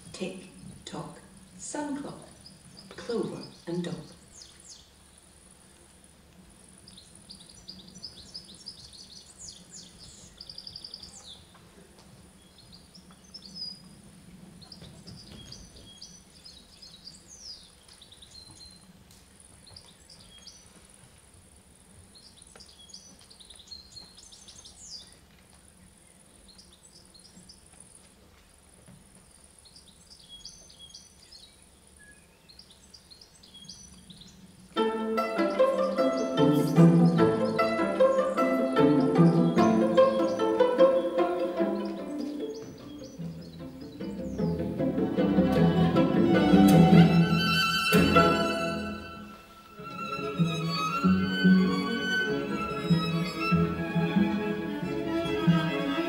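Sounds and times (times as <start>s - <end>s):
bird chirps and trills: 35.2s - 44.6s.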